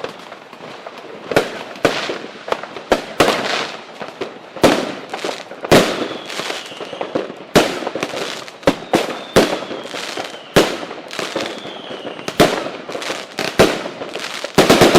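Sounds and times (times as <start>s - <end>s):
fireworks bangs with crackle: 0.0s - 14.9s
falling firework whistles: 4.6s - 14.9s.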